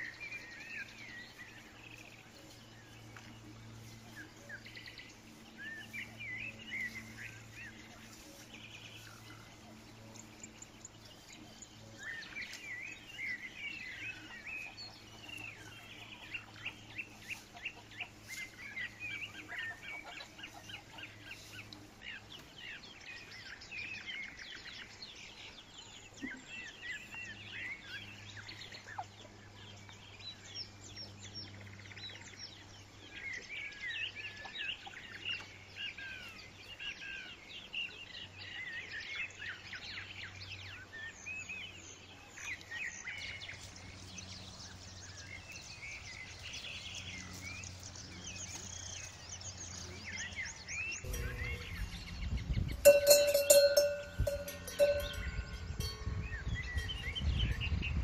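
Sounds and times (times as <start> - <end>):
steady low hum: 0.0 - 25.6, 38.4 - 58.0
small birds chirping: 0.0 - 58.0.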